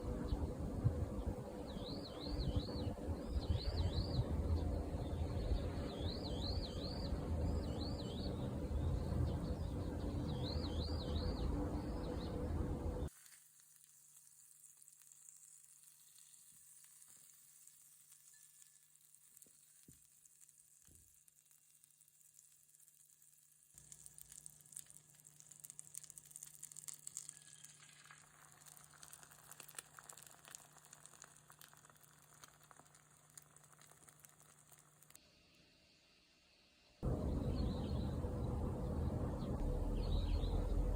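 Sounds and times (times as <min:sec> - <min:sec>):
low steady hum: 0:00.0 - 0:13.1, 0:37.0 - 0:40.9
food sizzling in a pan: 0:13.1 - 0:35.2.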